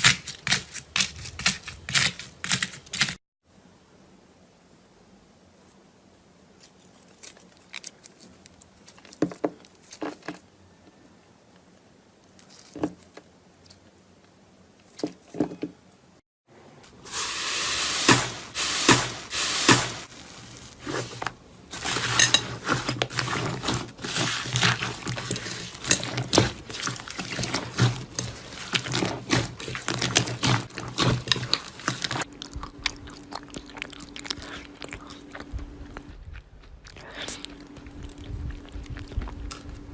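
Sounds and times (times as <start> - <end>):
slime squishing and crackling: 19.8 - 36.0.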